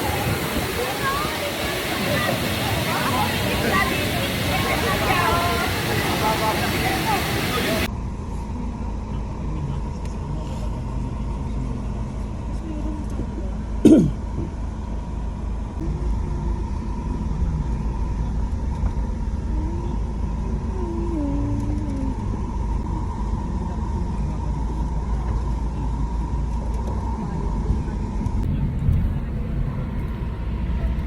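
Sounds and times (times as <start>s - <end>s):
vehicle rumble: 0.0s - 31.0s.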